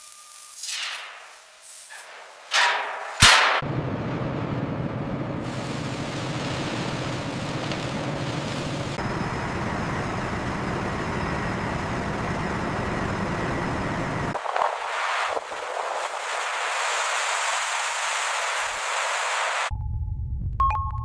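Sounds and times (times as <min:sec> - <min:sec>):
faint high whine: 0:00.0 - 0:01.5, 0:05.5 - 0:19.7
heavy machinery rumble with hiss: 0:05.3 - 0:14.4.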